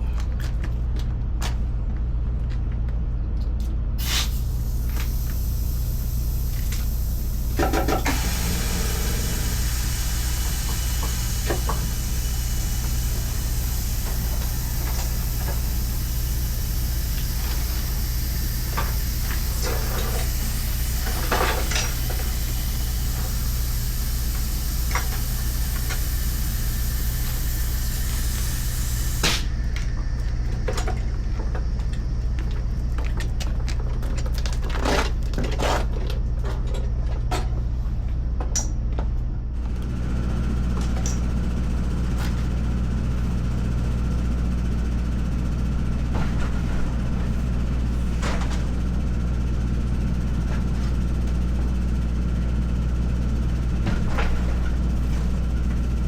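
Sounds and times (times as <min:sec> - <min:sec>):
engine running steadily: 0:00.0 - 0:56.0
hiss: 0:04.0 - 0:31.3.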